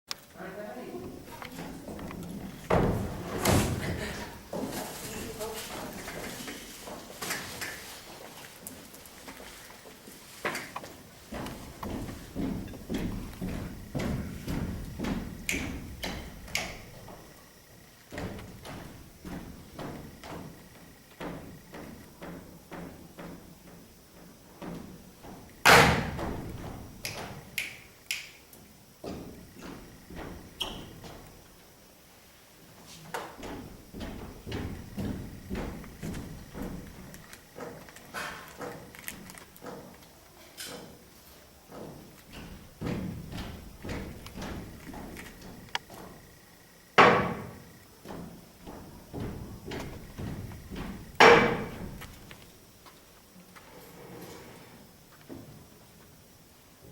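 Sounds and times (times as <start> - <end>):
loud bangs on table: 25.7 - 26.2, 51.2 - 51.7.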